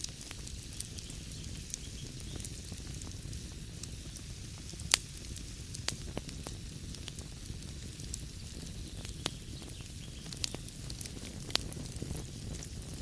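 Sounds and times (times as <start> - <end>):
fire popping loudly: 0.0 - 13.0
wood fire crackling: 0.0 - 13.0.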